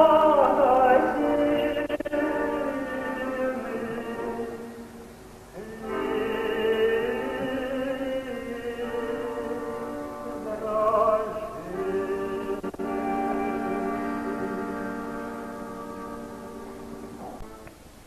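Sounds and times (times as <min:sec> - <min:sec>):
slow song sung with vibrato: 0:00.0 - 0:18.0
sustained chordal accompaniment: 0:05.6 - 0:17.7.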